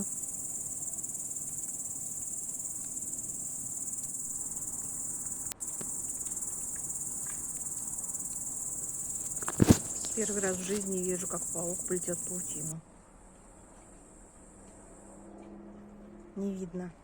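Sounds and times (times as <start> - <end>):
insects chirring: 0.0 - 12.8.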